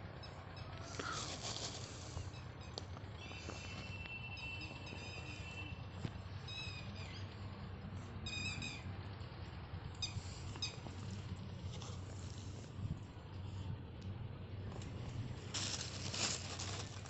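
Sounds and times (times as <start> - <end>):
steady low hum: 0.0 - 17.0
squirrel chirping: 2.1 - 5.7, 6.4 - 7.4, 8.2 - 9.0.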